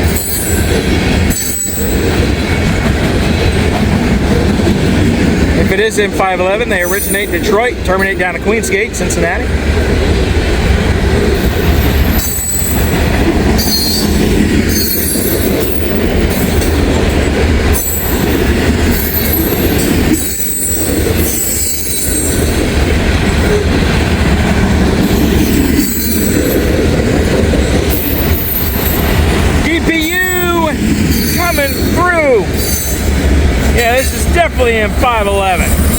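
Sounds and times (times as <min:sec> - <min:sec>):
wheel squeals: 0:00.0 - 0:02.1, 0:11.4 - 0:13.0, 0:13.6 - 0:16.8, 0:17.7 - 0:22.6, 0:25.0 - 0:26.7, 0:27.6 - 0:29.1
train wheels rumbling on rail: 0:00.0 - 0:35.9.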